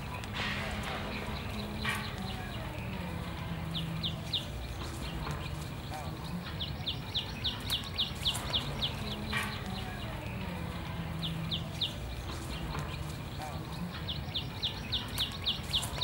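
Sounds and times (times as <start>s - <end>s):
low outdoor hum: 0.0s - 16.0s
bird chirping rapidly: 6.6s - 10.1s, 11.2s - 16.0s.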